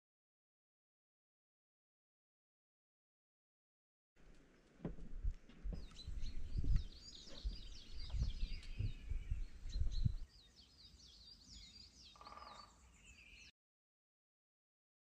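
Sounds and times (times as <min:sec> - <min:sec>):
small birds chirping: 0:04.3 - 0:13.5.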